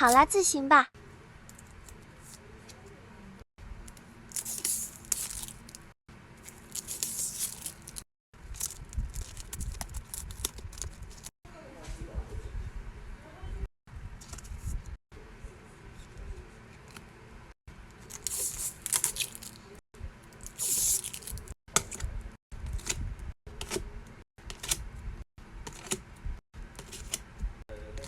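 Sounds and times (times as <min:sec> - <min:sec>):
paper or plastic crinkling: 0:04.3 - 0:11.3, 0:18.1 - 0:19.7, 0:20.4 - 0:21.5.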